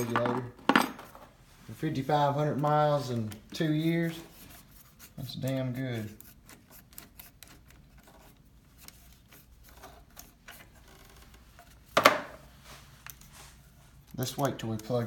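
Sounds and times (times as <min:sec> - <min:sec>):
hands handling parts and wiring: 0:00.0 - 0:01.4, 0:02.4 - 0:15.0.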